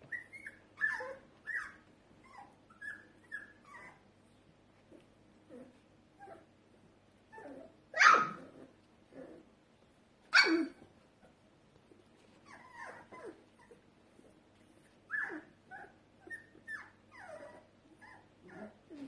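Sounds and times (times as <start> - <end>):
puppies whimpering and yelping: 0.0 - 4.1, 10.4 - 11.4, 12.2 - 19.0.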